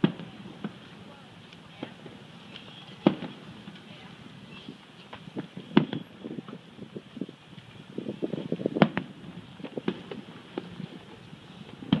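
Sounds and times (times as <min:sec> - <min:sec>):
small firework pops: 0:00.0 - 0:03.9, 0:04.6 - 0:06.6, 0:08.5 - 0:12.0
distant firework bangs: 0:00.0 - 0:06.7, 0:08.2 - 0:12.0
rapid firework crackling: 0:00.0 - 0:12.0.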